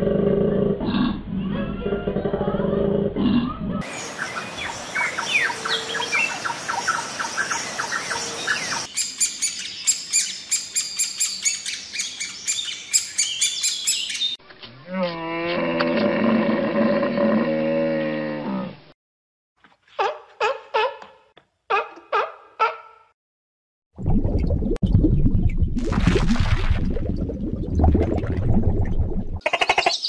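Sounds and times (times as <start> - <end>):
deep drawn-out animal call: 0.0 - 3.8, 14.7 - 18.9
bird chirps: 3.9 - 14.4, 29.5 - 30.0.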